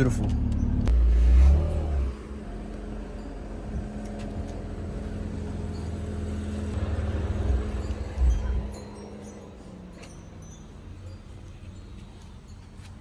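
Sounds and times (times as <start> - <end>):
car engine idling: 0.0 - 9.7.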